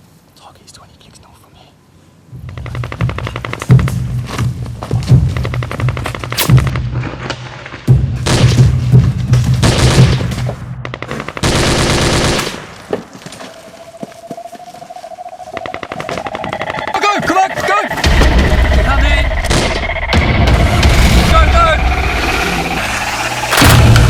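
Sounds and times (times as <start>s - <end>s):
automatic gunfire: 10.9s - 12.7s
faint rising tone: 13.4s - 24.0s
low steady drone: 13.8s - 24.0s.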